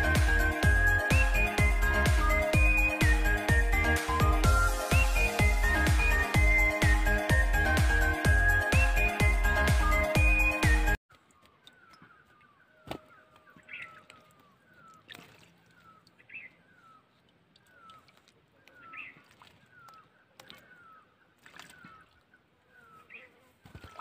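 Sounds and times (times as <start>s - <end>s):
faint bird calls: 11.2s - 24.0s.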